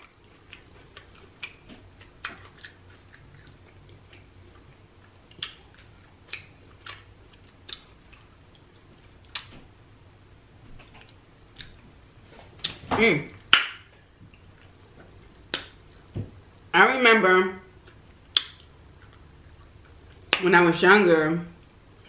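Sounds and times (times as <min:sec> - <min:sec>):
crisp chewing crackles: 0:00.0 - 0:09.5
mouth clicks: 0:18.3 - 0:18.7.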